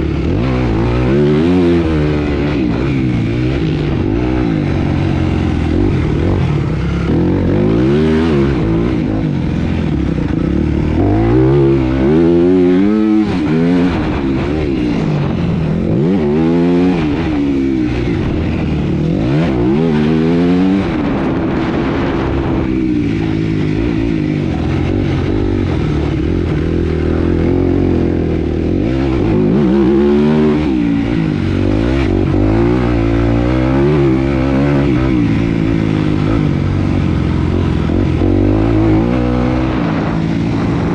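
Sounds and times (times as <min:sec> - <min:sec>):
motorcycle engines revving: 0:00.0 - 0:40.9.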